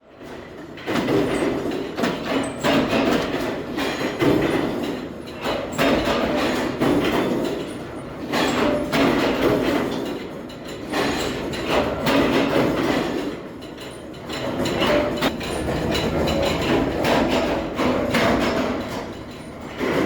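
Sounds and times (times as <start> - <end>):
heavy metal clanks: 11.0 - 20.0
machinery rumble: 13.5 - 20.0.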